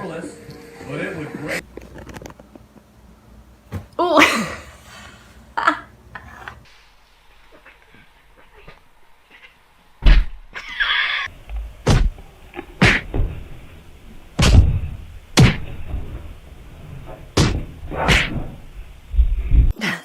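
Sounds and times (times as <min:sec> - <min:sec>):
heavy thuds: 0:11.3 - 0:19.7.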